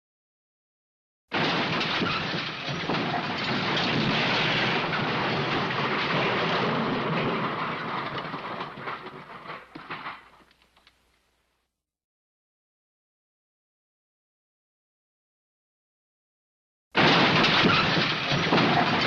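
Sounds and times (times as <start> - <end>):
debris crashing and tumbling: 1.3 - 11.0, 17.0 - 19.0.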